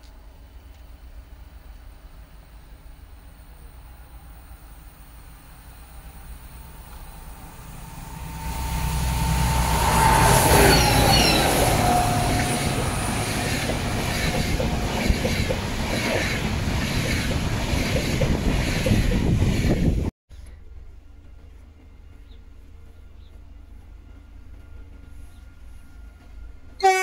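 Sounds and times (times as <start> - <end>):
diesel locomotive engine: 0.0 - 27.0
wheels clicking on track: 5.9 - 20.6
whine dropping in pitch: 6.6 - 16.0
wheel squeals: 7.1 - 15.5.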